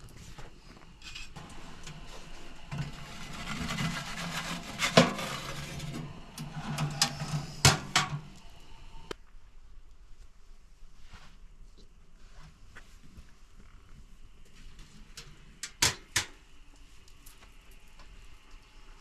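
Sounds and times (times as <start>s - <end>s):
low hum: 0.0s - 10.1s
rubbing and scraping: 0.2s - 8.4s.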